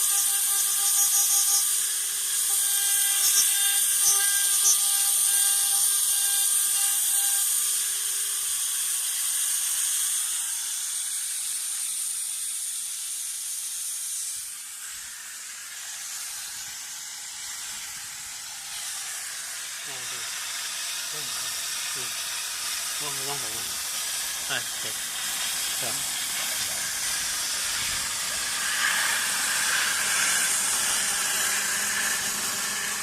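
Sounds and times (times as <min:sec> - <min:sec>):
hiss of cooling spray: 0:10.8 - 0:33.0.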